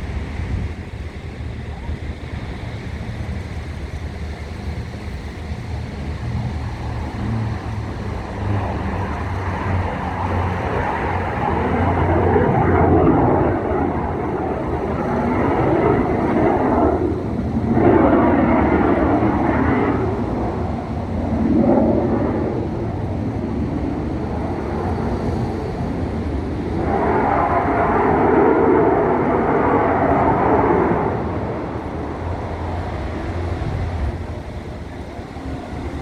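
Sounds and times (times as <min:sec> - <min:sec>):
aircraft engine rushing: 0:00.0 - 0:36.0
steady low hum: 0:00.0 - 0:36.0.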